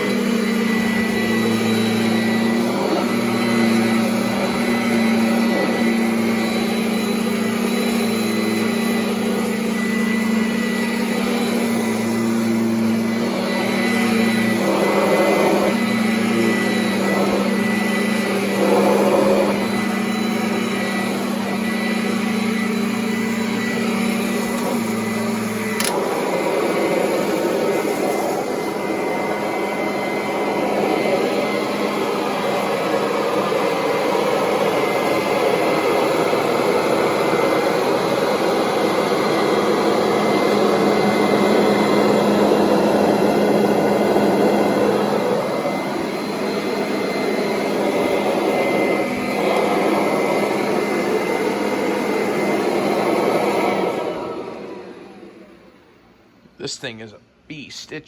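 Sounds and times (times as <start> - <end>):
upright vacuum cleaner running: 0.0 - 56.5
vacuum cleaner sharp click: 24.2 - 26.3.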